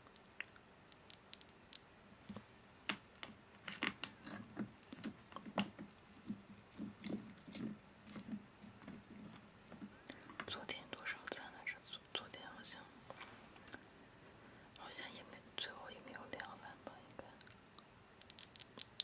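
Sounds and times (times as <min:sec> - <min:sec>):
sharp clicks: 0:00.1 - 0:01.8, 0:17.4 - 0:19.0.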